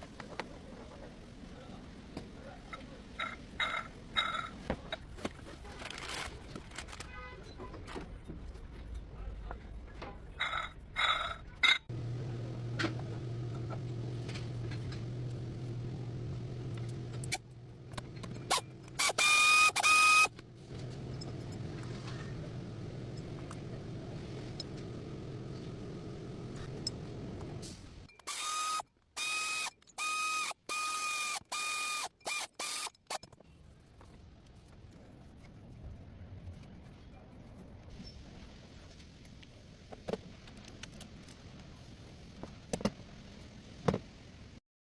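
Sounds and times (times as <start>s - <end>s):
vehicle engine running: 11.9s - 19.0s, 20.4s - 28.1s.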